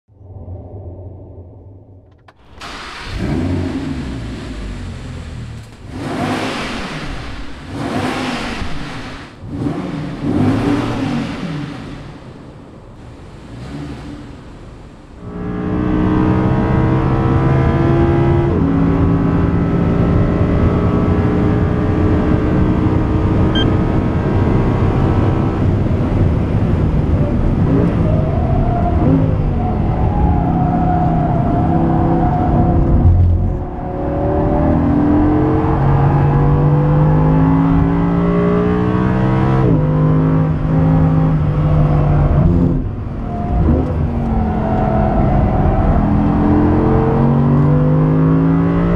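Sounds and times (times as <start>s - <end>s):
sports car engine revving: 2.4s - 28.1s.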